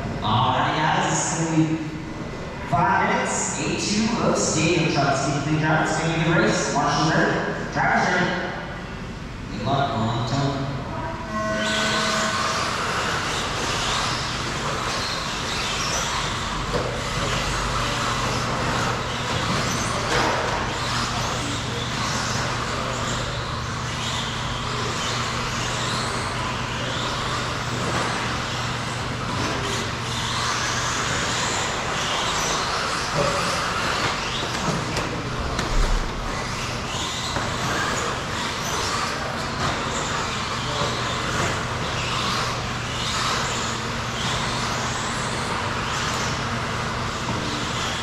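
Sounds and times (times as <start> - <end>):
steady low hum: 0.0 - 48.0
electric motors whining: 11.1 - 48.0
tyre and chassis noise: 11.6 - 48.0.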